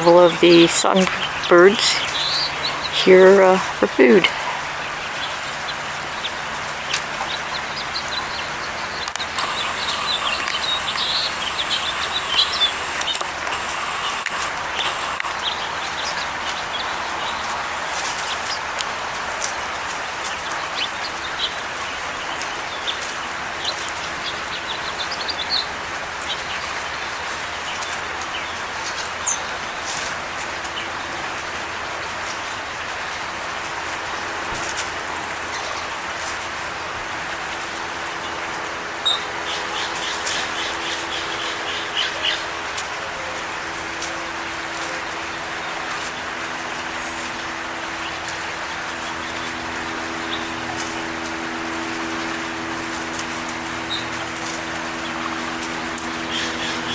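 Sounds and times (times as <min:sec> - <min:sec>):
songbirds chirping: 0:00.0 - 0:17.4, 0:45.1 - 0:56.9
background hiss: 0:09.0 - 0:16.0.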